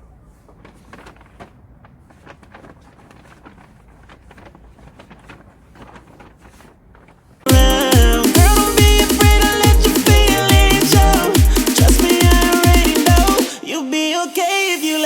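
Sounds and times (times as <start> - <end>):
faint clicks and rustles: 0.0 - 7.5.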